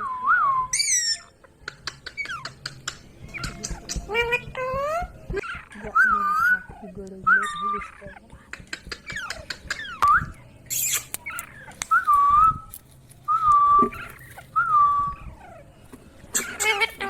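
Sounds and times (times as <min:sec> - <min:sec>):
parrot whistling and chirping: 0:00.0 - 0:17.0.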